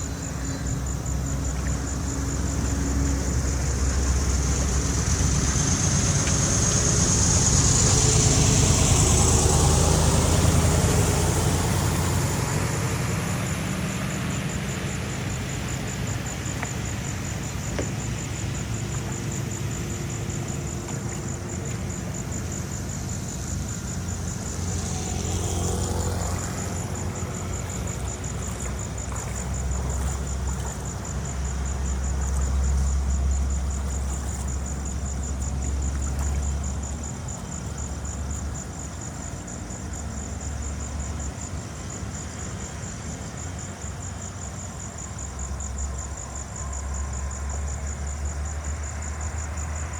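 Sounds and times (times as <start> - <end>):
engine low rumble: 0.0 - 49.9
high-pitched pulsing whine: 0.0 - 49.9.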